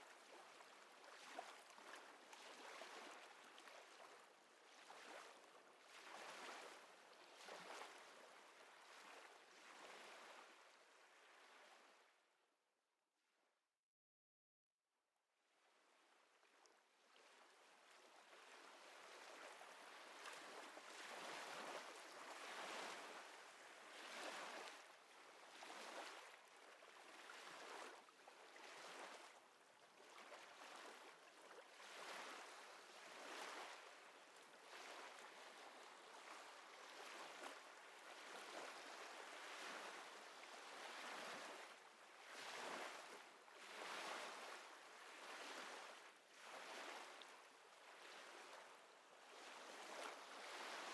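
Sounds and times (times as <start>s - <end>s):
small waves lapping: 0.1s - 8.2s, 17.6s - 50.9s.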